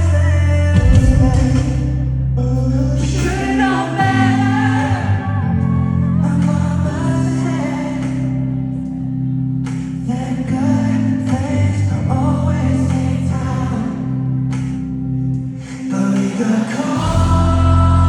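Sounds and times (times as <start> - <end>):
live pop band with singing: 0.0 - 18.0.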